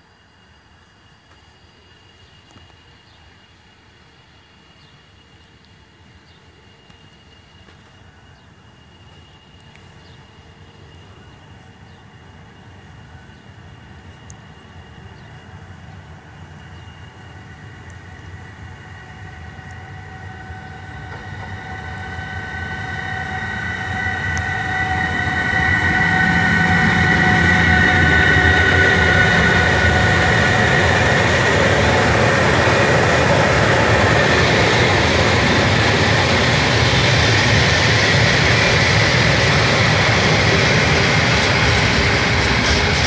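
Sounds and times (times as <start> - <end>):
electric locomotive whine: 0.0 - 43.0.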